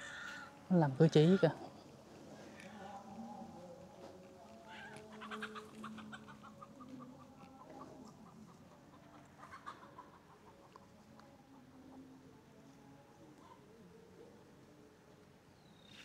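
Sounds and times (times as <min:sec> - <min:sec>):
chicken clucking: 0:01.3 - 0:13.8.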